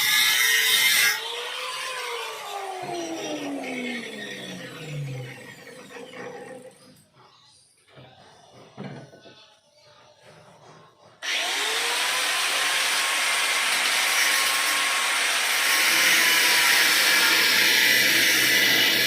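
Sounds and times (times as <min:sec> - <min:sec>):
power tool motor running: 0:11.2 - 0:19.0.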